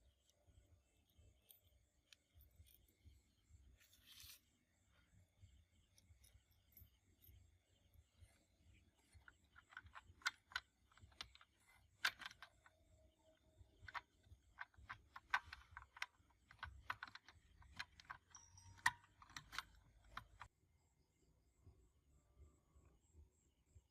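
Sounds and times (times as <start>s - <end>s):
hand tools clicking and tapping: 9.0s - 20.5s.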